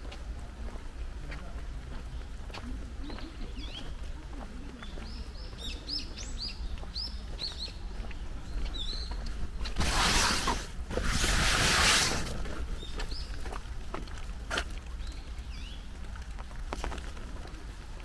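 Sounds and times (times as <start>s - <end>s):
small birds chirping: 1.9s - 16.5s
loud rushing hisses: 9.8s - 12.4s.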